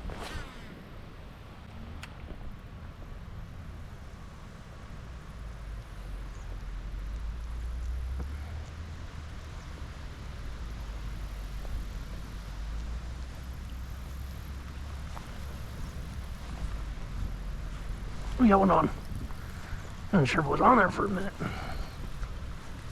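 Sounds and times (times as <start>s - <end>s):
faint clicks: 1.6s - 2.4s
wind buffeting microphone: 10.3s - 22.9s.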